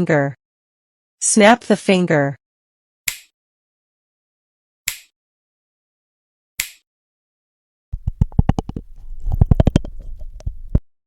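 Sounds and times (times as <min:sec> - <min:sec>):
fast irregular clicks: 0:08.0 - 0:10.8.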